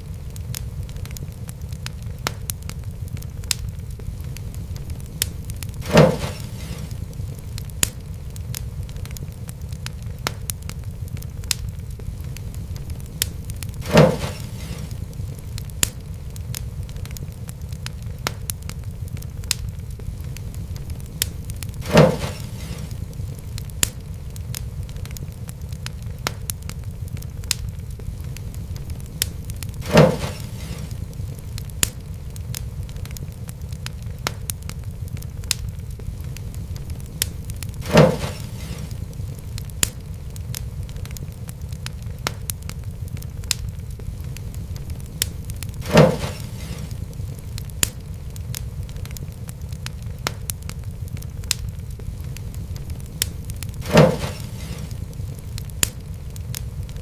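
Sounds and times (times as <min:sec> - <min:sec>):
fire crackling: 0:00.0 - 0:57.0
loud fire pop: 0:00.5 - 0:57.0.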